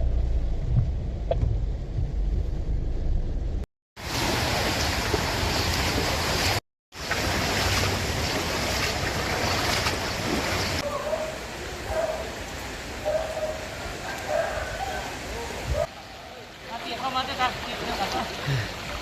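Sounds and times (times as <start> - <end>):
floodwater rushing: 4.0 - 19.0
wind on microphone: 15.6 - 15.9.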